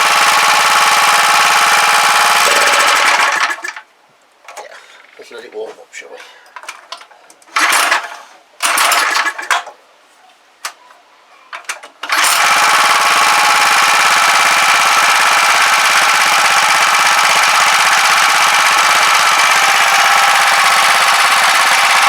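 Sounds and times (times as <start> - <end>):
small petrol engine running: 0.0 - 3.8, 7.6 - 9.5, 12.0 - 22.0
engine starting rasps and clicks: 2.0 - 3.8, 7.5 - 9.6, 12.0 - 22.0.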